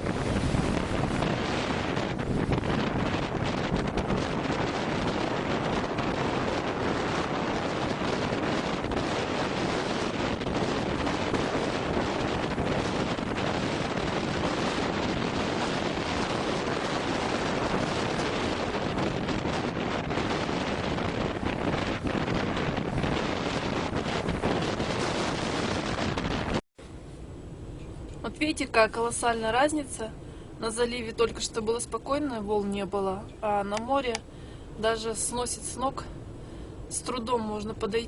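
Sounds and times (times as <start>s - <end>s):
sea surf breaking: 0.0s - 26.6s
wind buffeting microphone: 0.0s - 38.0s.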